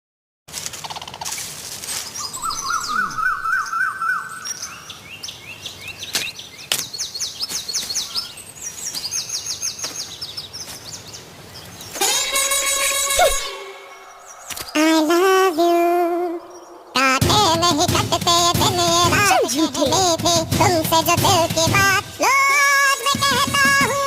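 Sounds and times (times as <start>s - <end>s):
birds singing and chirping: 1.8s - 24.0s
sharp clicks: 14.5s - 14.8s.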